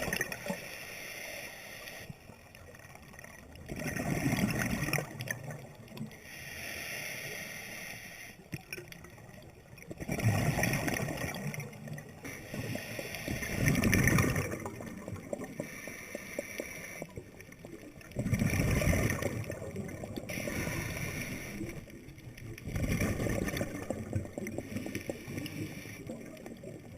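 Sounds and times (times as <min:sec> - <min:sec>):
exhaled bubbles gurgling underwater: 0:00.0 - 0:00.7, 0:02.1 - 0:06.4, 0:08.4 - 0:26.9
regulator hiss: 0:00.5 - 0:02.1, 0:06.2 - 0:08.4, 0:12.3 - 0:13.7, 0:20.3 - 0:21.9.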